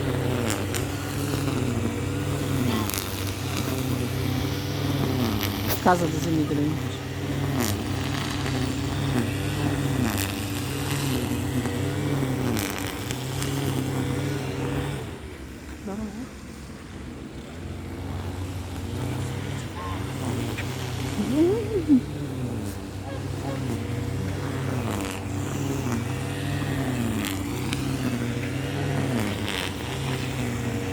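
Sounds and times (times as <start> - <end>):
engine running: 0.0 - 30.9.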